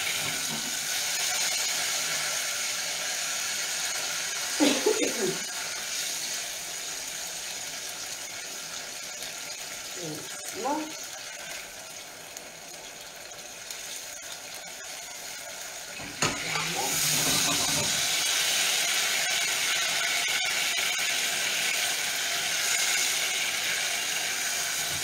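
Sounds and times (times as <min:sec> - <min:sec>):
food sizzling in pans: 0:00.0 - 0:25.0.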